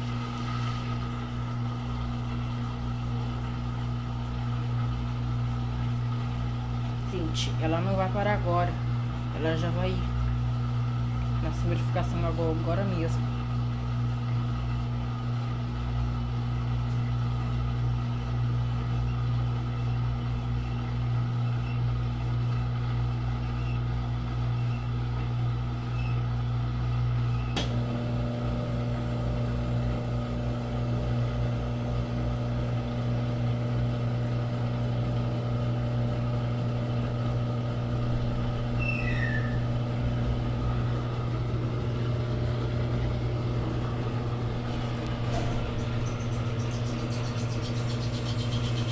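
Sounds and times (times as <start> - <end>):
washing machine motor hum: 0.0 - 48.9
washing machine click: 27.6 - 28.7, 39.9 - 48.9.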